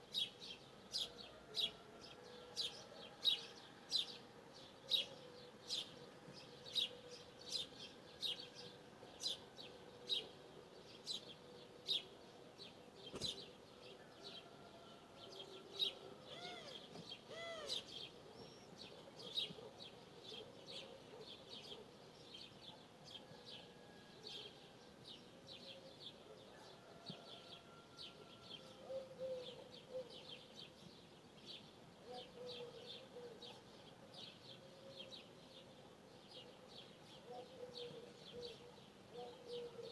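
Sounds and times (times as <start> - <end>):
soft lower bird calls: 16.2 - 18.8
bird chirping high: 16.3 - 18.7.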